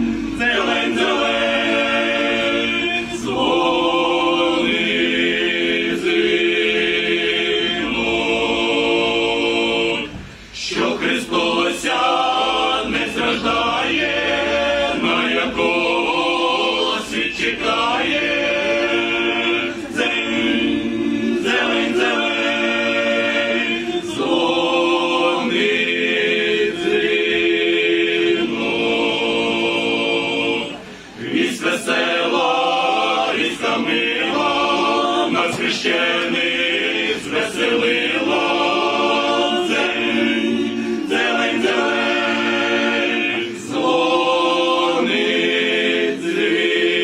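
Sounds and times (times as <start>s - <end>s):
choir singing a carol: 0.0s - 47.0s.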